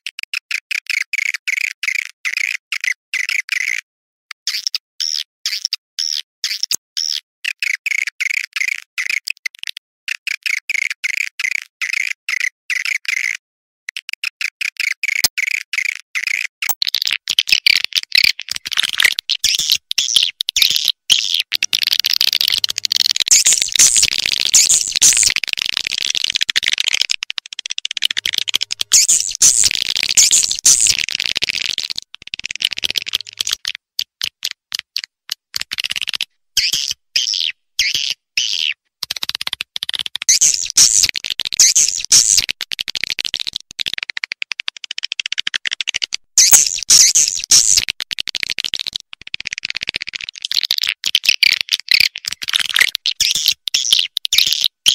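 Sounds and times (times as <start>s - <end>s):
swiftlets clicking chirps: 18.5s - 33.6s, 40.3s - 42.6s, 46.4s - 47.8s.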